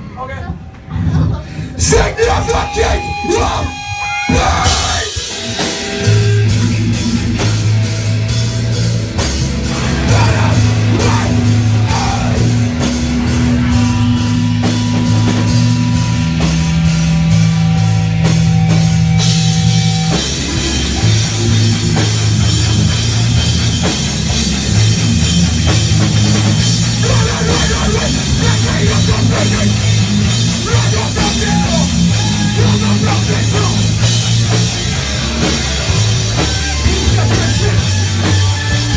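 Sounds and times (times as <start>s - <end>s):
hardcore punk band playing live: 0.7s - 38.9s.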